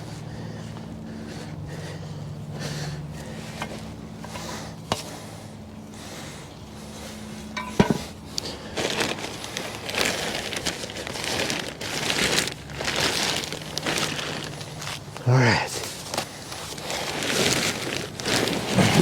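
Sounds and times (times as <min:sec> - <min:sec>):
plastic bag rustling: 0:07.6 - 0:19.0.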